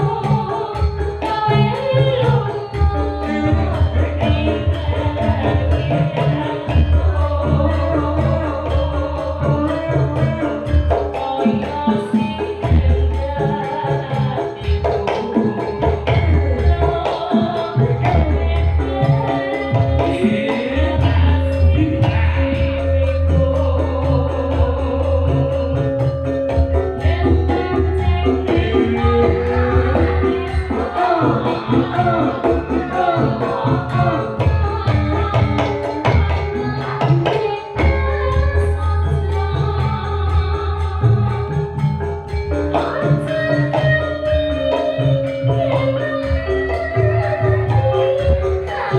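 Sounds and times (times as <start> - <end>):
gamelan music: 0.0 - 48.9
hand drumming: 0.0 - 48.9
pulsing bass: 2.8 - 11.1, 17.8 - 36.6.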